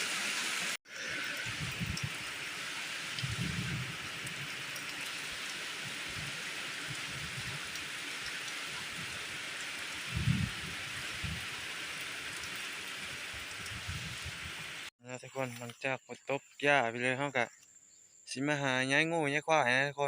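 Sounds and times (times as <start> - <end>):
rain falling: 0.0 - 14.9.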